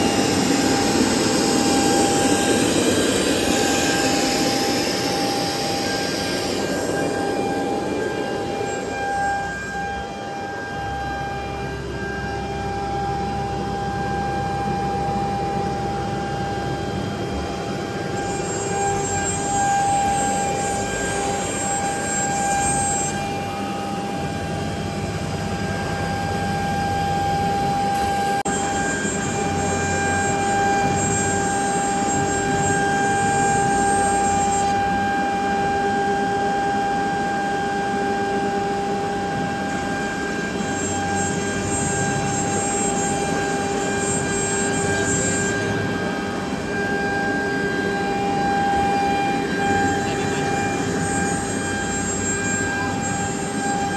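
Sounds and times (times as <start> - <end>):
machine and pump rushing noise: 0.0 - 53.9
router spindle whining: 0.0 - 53.9.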